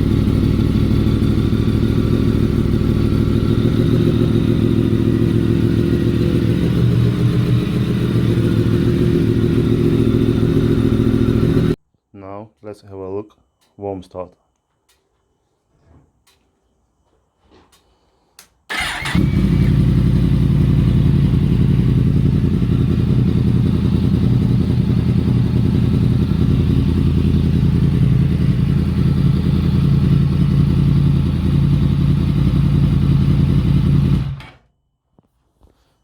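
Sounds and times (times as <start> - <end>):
motorcycle engine starting and idling: 0.0 - 11.8, 18.7 - 34.7.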